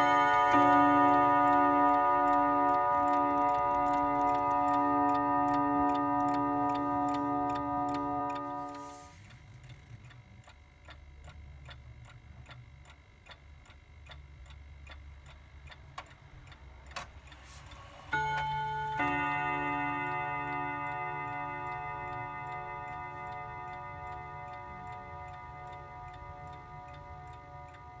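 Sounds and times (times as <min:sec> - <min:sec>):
clock ticking: 0:00.0 - 0:09.0, 0:09.6 - 0:28.0
two-note clock chime: 0:00.0 - 0:09.1, 0:18.1 - 0:28.0.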